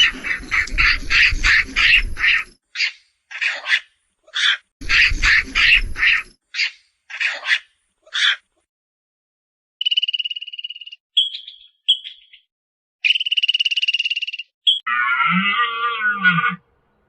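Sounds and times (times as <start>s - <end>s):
frog chirps: 9.8s - 14.9s
lower-pitched animal call: 14.7s - 16.6s.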